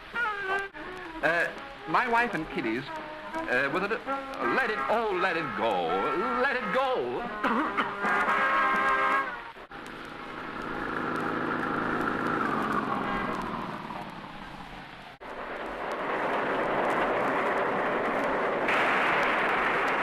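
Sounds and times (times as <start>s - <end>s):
steady rushing engine noise: 7.4s - 20.0s
car engine passing by: 10.1s - 18.7s.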